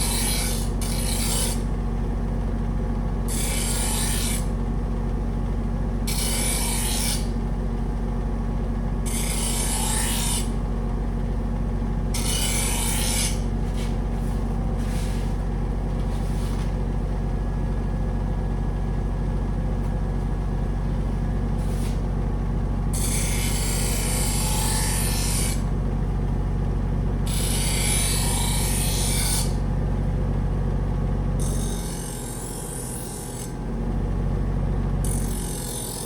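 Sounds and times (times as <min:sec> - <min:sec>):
knife blade rasping on belt: 0:00.0 - 0:01.6, 0:12.2 - 0:15.4
belt sander motor hum: 0:00.0 - 0:36.0.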